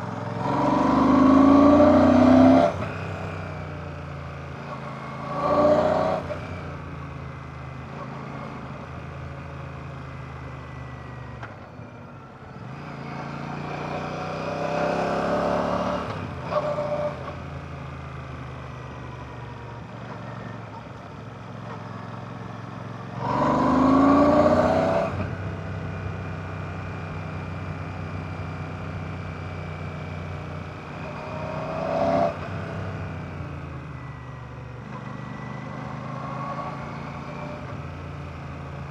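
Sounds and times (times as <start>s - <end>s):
motorcycle engine revving: 0.0s - 3.7s, 12.7s - 17.4s, 23.0s - 34.0s.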